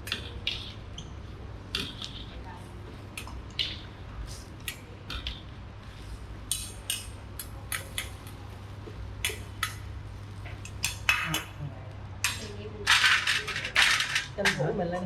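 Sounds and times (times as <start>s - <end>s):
steady low hum: 0.0s - 15.0s
metal utensils clinking on dishes: 1.8s - 2.4s, 12.2s - 14.8s.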